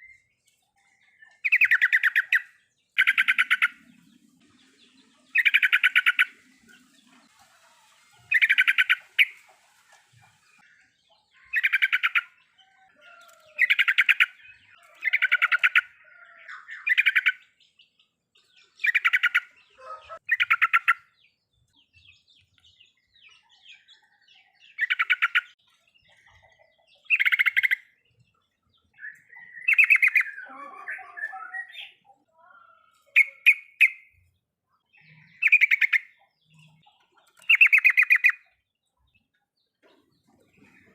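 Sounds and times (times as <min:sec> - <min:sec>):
bird chattering: 0:01.4 - 0:03.9, 0:05.4 - 0:06.4, 0:11.4 - 0:12.4, 0:27.0 - 0:27.9, 0:33.0 - 0:34.2, 0:35.1 - 0:38.6.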